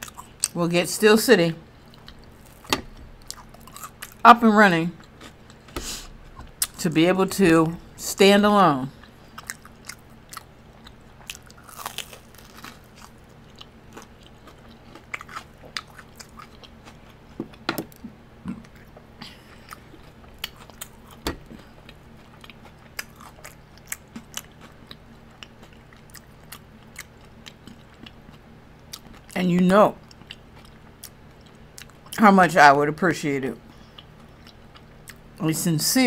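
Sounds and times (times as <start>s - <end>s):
crunchy chewing: 0.0s - 0.6s, 1.7s - 4.2s, 5.0s - 6.8s, 8.9s - 29.4s.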